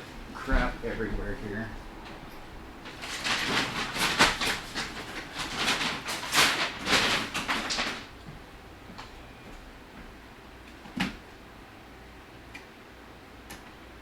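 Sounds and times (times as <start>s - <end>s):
rummaging through tools: 2.8s - 8.1s.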